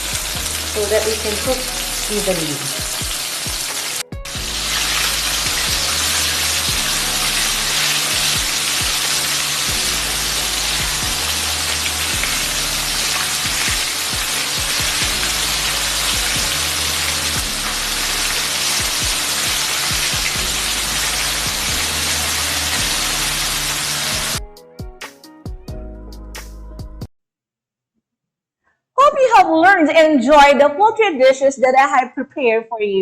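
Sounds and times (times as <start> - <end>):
chicken frying in oil: 0.0 - 24.4
background music bass line: 0.0 - 27.1.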